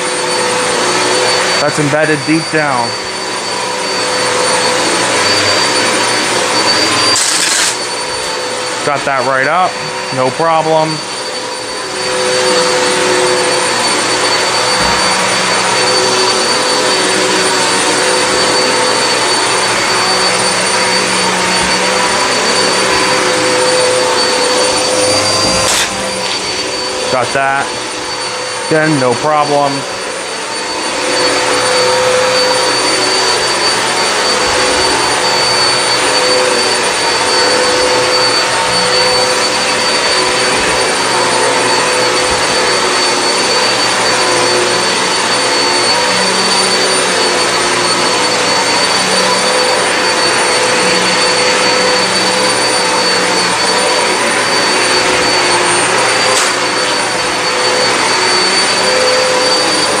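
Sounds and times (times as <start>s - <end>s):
vacuum cleaner running on carpet: 0.0s - 60.0s.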